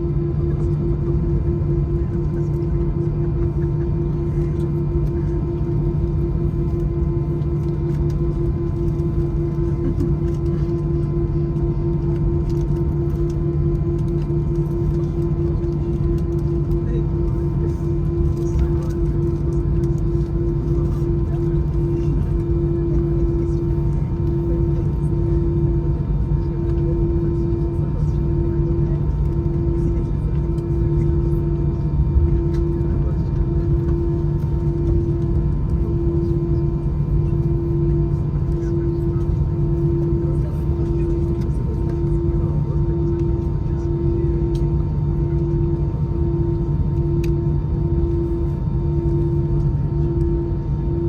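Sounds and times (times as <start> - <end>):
aircraft engines running at low power: 0.0 - 51.0
cabin air running: 0.0 - 51.0.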